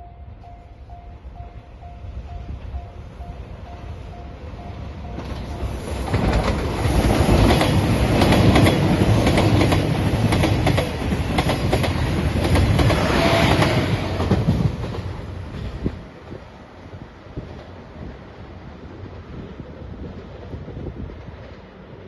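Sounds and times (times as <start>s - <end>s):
diesel train passing at speed: 0.0s - 22.0s
wheels clicking over rail joints: 5.1s - 16.4s.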